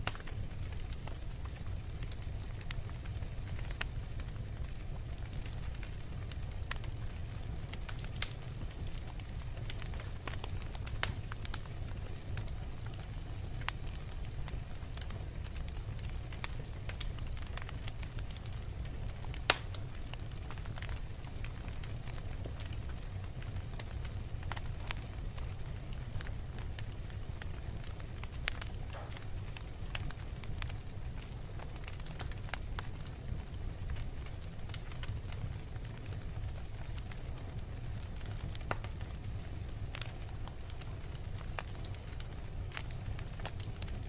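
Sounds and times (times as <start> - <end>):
burning wood crackling: 0.0 - 44.0
fire flames rumbling: 0.0 - 44.0
loud pop from fire: 19.5 - 19.8, 28.8 - 29.4.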